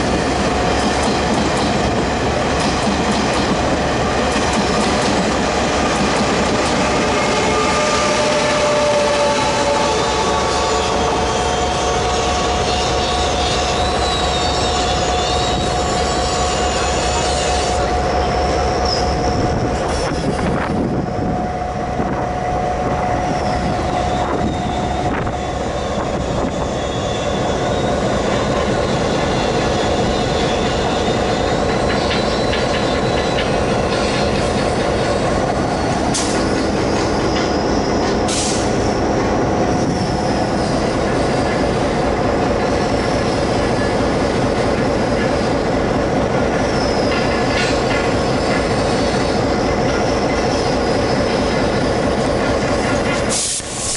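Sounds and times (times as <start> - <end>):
train rumbling past: 0.0 - 53.9
wheel squeal: 7.6 - 17.8, 23.4 - 34.2, 46.6 - 52.2.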